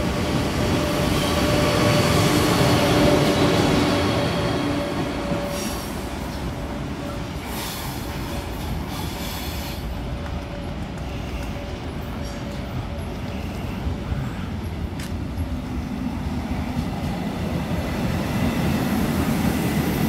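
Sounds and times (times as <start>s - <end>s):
train rumble and motor hum: 0.0s - 20.0s.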